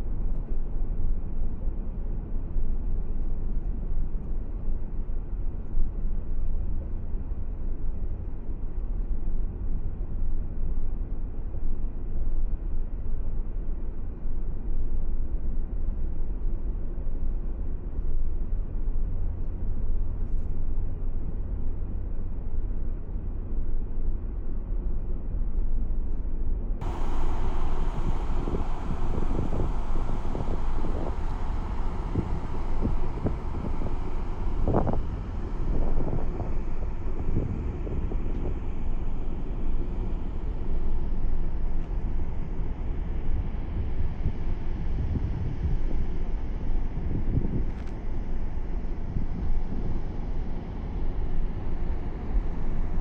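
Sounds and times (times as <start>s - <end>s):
rush of wind noise: 26.8s - 46.3s
car engine and tyre rumble: 26.8s - 47.0s.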